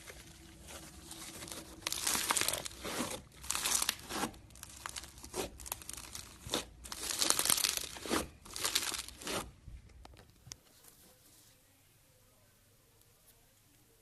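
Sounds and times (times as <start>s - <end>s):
slime crackling and crinkling: 0.0s - 10.4s.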